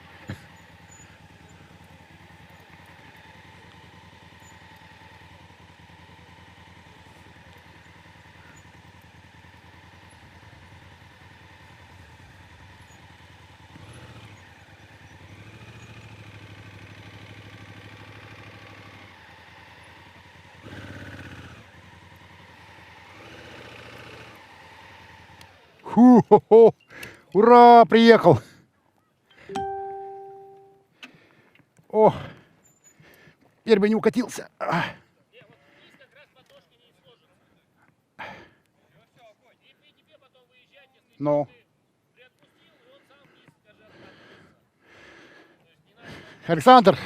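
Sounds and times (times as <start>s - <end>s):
motorcycle engine running: 0.0s - 26.2s, 29.6s - 30.8s.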